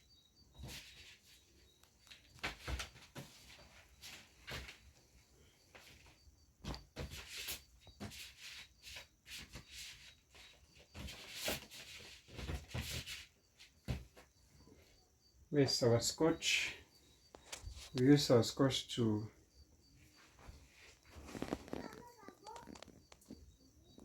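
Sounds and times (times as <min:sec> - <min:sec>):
parts clicking and rustling: 0:17.3 - 0:18.2, 0:20.9 - 0:23.5.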